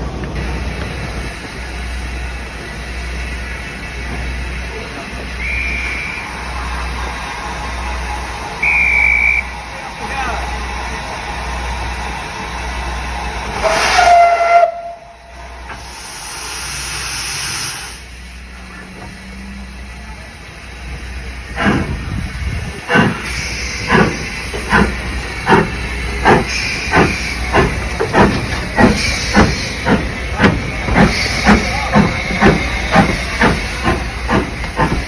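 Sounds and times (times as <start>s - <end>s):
steam hissing: 0.4s - 35.0s
steam locomotive whistle: 5.3s - 6.6s, 8.6s - 9.6s, 13.5s - 15.4s
locomotive exhaust chuffs: 11.3s - 35.0s.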